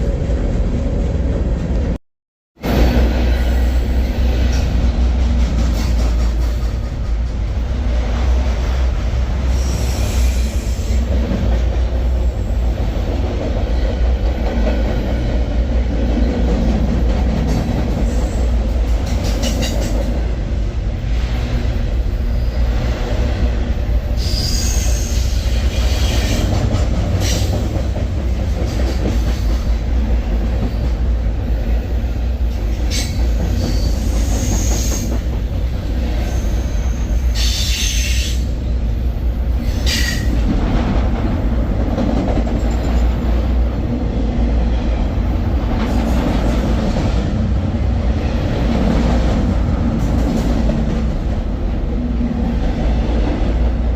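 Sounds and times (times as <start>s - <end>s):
freight train rumbling: 0.0s - 2.0s, 2.6s - 53.9s
train wheels squealing: 9.5s - 11.1s, 24.2s - 26.5s, 32.8s - 35.2s, 36.1s - 38.5s, 39.6s - 40.4s.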